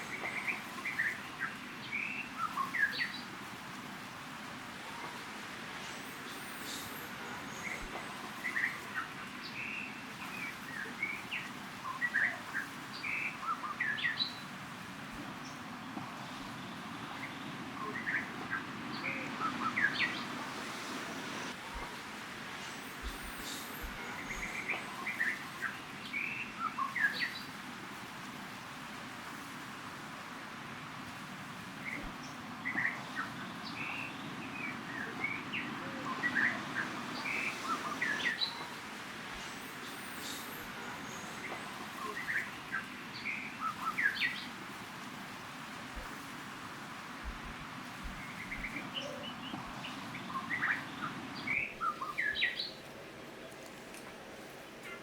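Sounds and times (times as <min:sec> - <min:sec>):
background hiss: 0:00.0 - 0:55.0
birds chirping: 0:31.8 - 0:53.7.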